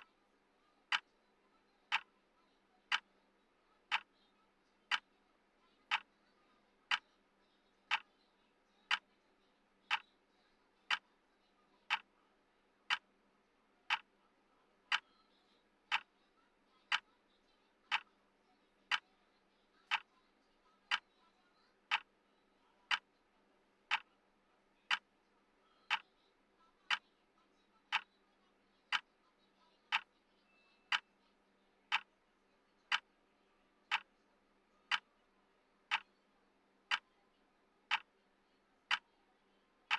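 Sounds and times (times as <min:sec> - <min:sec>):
clock ticking: 0:00.9 - 0:01.1, 0:01.9 - 0:02.1, 0:02.8 - 0:03.1, 0:03.8 - 0:04.1, 0:05.8 - 0:06.1, 0:06.9 - 0:07.1, 0:07.9 - 0:08.1, 0:08.9 - 0:09.1, 0:09.9 - 0:10.1, 0:11.8 - 0:12.1, 0:12.9 - 0:13.1, 0:13.9 - 0:14.1, 0:14.9 - 0:15.1, 0:15.9 - 0:16.1, 0:16.9 - 0:17.1, 0:17.9 - 0:18.1, 0:19.9 - 0:20.1, 0:20.9 - 0:21.1, 0:21.9 - 0:22.1, 0:22.9 - 0:23.1, 0:23.9 - 0:24.1, 0:24.9 - 0:25.1, 0:25.9 - 0:26.1, 0:26.9 - 0:27.1, 0:27.9 - 0:28.2, 0:28.9 - 0:29.1, 0:29.9 - 0:30.1, 0:30.9 - 0:31.2, 0:31.9 - 0:32.1, 0:32.9 - 0:33.1, 0:33.9 - 0:34.1, 0:34.9 - 0:35.1, 0:35.9 - 0:36.2, 0:36.9 - 0:37.1, 0:37.9 - 0:38.1.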